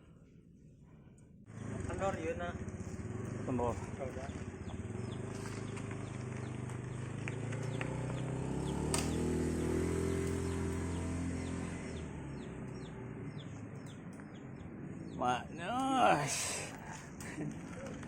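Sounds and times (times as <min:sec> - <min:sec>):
vehicle engine humming: 0:01.5 - 0:18.0.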